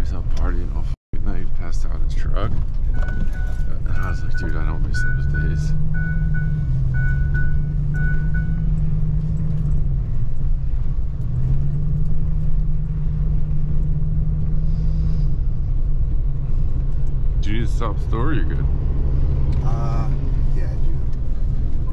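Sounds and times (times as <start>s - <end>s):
vehicle engine driving: 0.0s - 21.9s
short beeps: 2.9s - 8.9s.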